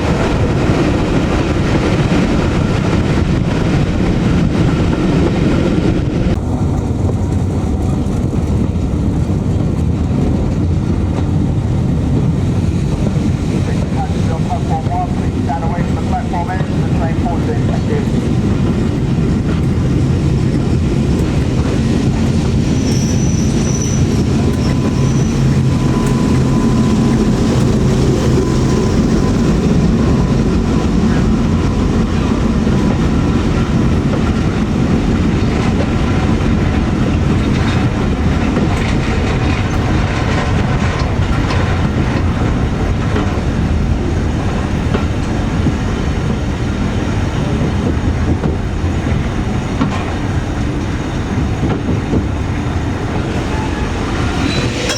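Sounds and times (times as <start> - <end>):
train wheels clickety-clack: 0.0 - 54.9
wheel squeal on rail: 22.4 - 27.7, 53.3 - 54.9.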